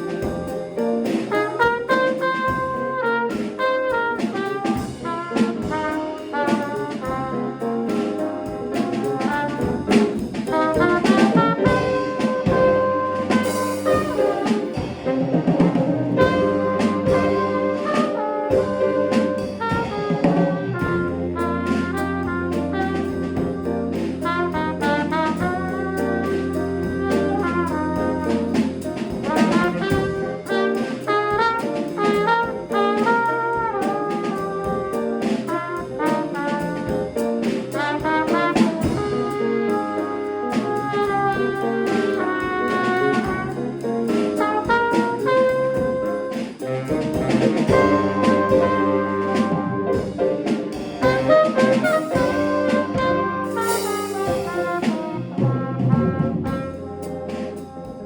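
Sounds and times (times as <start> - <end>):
horn lines: 0.0 - 58.0
jazz combo playing: 0.0 - 58.0
piano bass figure: 0.0 - 58.0
busy cymbals: 50.0 - 55.2.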